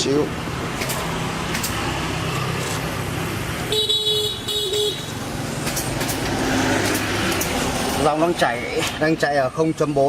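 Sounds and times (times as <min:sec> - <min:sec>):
vehicle horn honking: 0:03.7 - 0:05.1.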